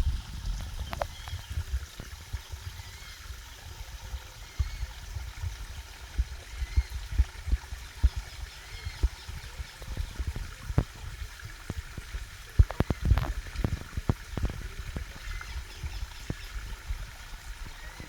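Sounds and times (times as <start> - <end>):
sharp water drips: 0.0 - 18.0
water splashing and trickling: 0.0 - 18.0.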